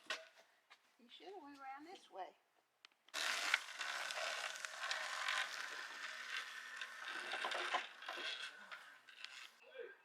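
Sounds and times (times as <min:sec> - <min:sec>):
electric motor whine: 0:03.2 - 0:09.2.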